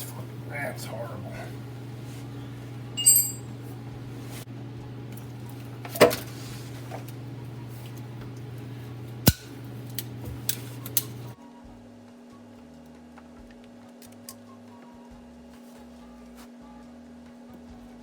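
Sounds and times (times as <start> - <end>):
low hum: 0.0 - 11.4
metal clanking against metal: 3.0 - 3.5.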